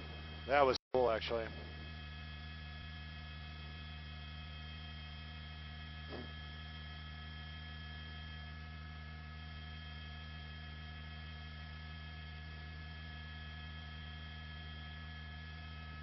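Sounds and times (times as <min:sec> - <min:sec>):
constant intercom tones: 0:00.0 - 0:07.6
steady electrical hum: 0:00.0 - 0:16.0.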